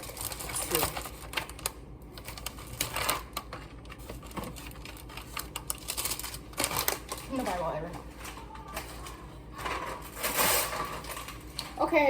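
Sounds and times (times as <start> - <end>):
kitchen items clattering on counter: 6.6 - 11.9.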